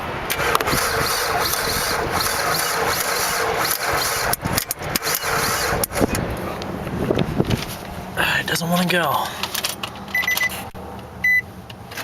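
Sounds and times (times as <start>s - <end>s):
car starter cranking: 0.3s - 6.2s.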